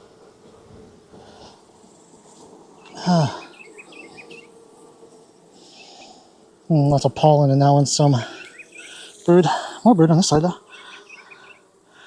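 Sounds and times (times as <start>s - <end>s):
honeybees buzzing: 0.0s - 12.0s
grunt or sigh: 3.0s - 3.5s.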